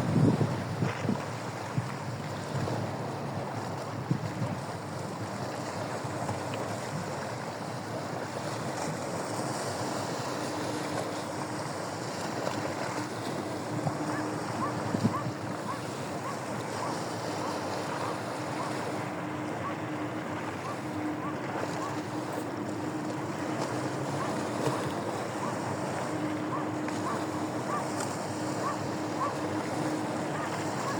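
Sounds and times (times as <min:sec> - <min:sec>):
wind on microphone: 0:00.0 - 0:02.8, 0:03.4 - 0:04.7, 0:13.7 - 0:22.4
water waves: 0:00.0 - 0:30.9.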